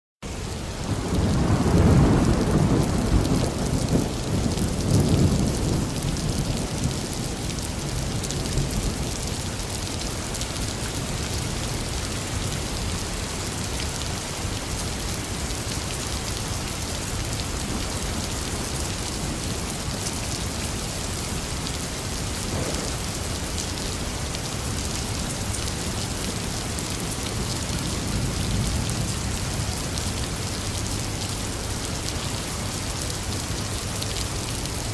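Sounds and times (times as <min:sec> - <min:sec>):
heavy rain falling: 0:00.3 - 0:34.9
low rumble of thunder: 0:00.8 - 0:09.7, 0:22.2 - 0:24.3.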